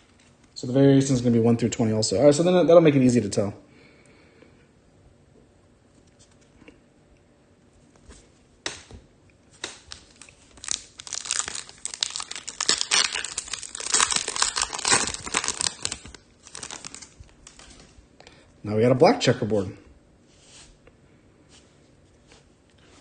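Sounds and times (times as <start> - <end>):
foil wrapper tearing and crinkling: 9.6 - 17.7.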